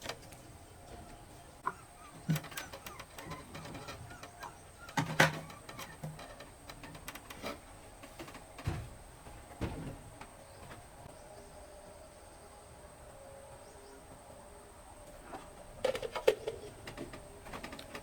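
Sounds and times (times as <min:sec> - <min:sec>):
objects knocking and clattering: 0:02.2 - 0:10.9, 0:15.8 - 0:18.0.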